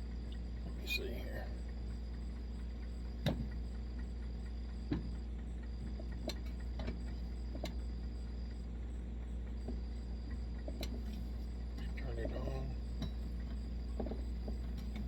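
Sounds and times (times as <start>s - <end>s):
low background hum: 0.0s - 15.0s
clicks of metal stove parts: 6.0s - 7.8s, 10.7s - 11.2s, 13.0s - 15.0s.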